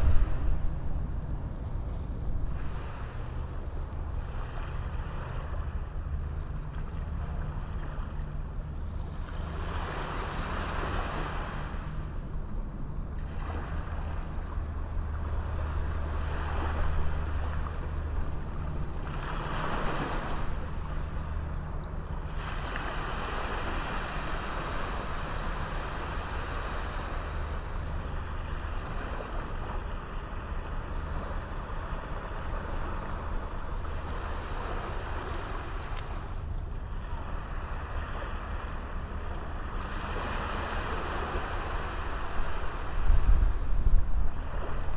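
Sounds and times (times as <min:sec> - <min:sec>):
steady low rumble: 0:00.0 - 0:10.3, 0:11.4 - 0:44.9
sea waves breaking on beach: 0:09.1 - 0:12.2, 0:13.2 - 0:44.9.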